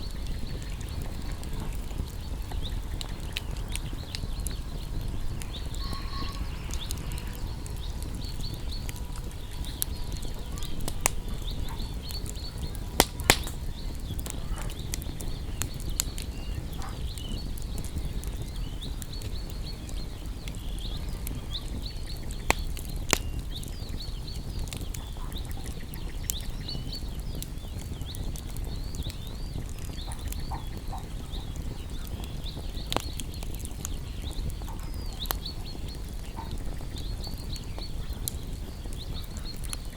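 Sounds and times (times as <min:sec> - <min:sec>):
wood fire crackling and popping: 0:00.0 - 0:39.9
faint high chirps: 0:00.2 - 0:12.8.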